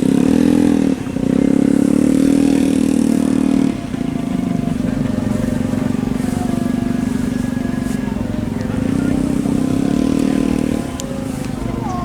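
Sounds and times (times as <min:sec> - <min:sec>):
motorcycle engine revving and idling: 0:00.0 - 0:12.0.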